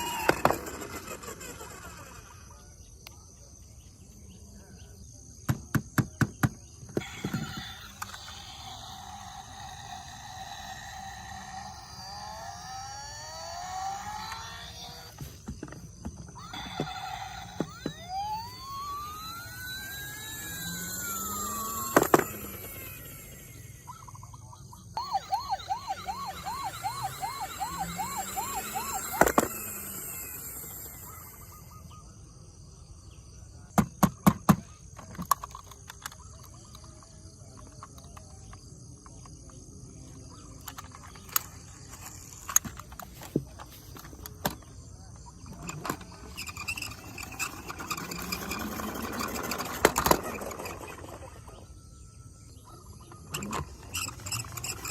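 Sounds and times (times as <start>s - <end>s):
toy siren wailing and yelping: 0.0s - 2.6s, 7.0s - 32.0s, 40.3s - 54.9s.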